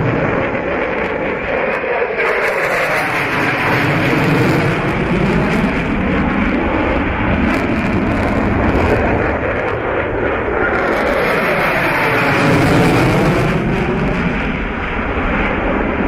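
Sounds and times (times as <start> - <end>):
aircraft engine flying past: 0.0 - 16.0.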